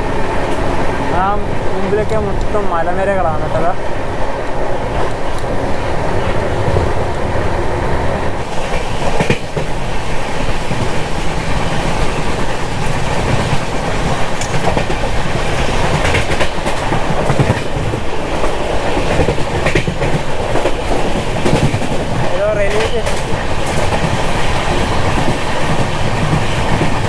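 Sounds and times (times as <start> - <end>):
train coach rumbling: 0.0 - 27.0
wheels clicking over rail joints: 10.5 - 27.0.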